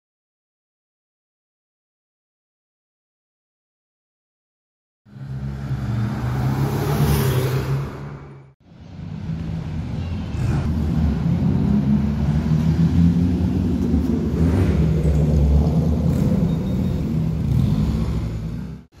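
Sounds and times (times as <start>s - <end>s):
car engines passing: 5.1s - 19.0s.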